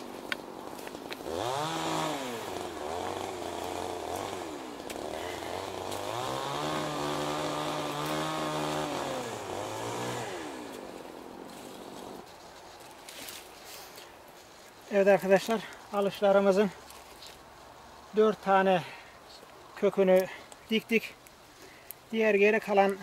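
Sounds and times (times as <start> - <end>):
small petrol engine revving: 1.1 - 12.3.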